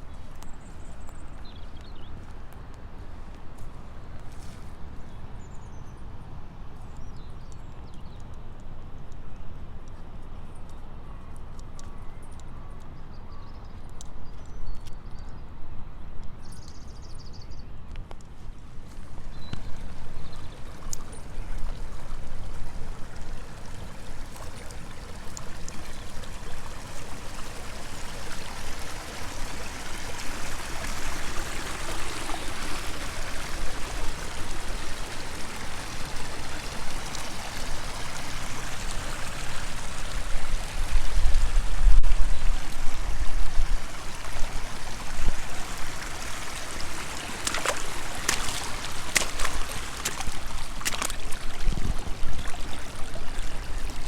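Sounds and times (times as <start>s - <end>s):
water flowing: 18.7s - 54.0s.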